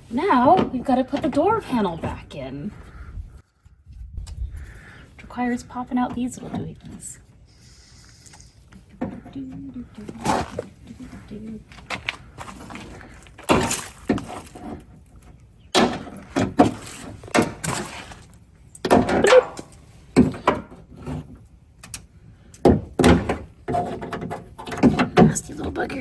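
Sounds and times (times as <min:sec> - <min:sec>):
scrapes: 0:06.2 - 0:15.4, 0:16.0 - 0:18.4.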